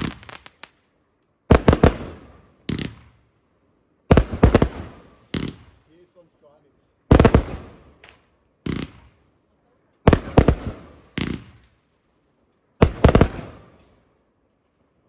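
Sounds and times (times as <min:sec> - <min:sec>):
fireworks bangs: 0:00.0 - 0:00.8, 0:01.5 - 0:03.3, 0:04.1 - 0:06.1, 0:07.1 - 0:09.3, 0:10.0 - 0:11.9, 0:12.8 - 0:14.0.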